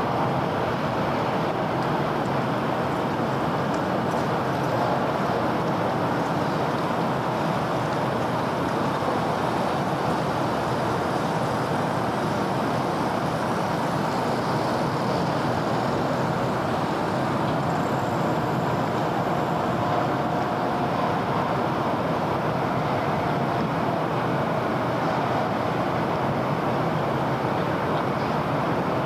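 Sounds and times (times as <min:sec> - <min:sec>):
faint steady whine: 0:05.9 - 0:26.4.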